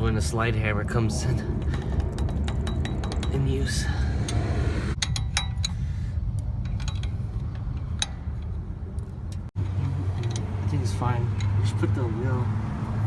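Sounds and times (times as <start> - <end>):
steady low hum: 0.0 - 10.5
metallic clicks of hand tools: 5.0 - 10.7.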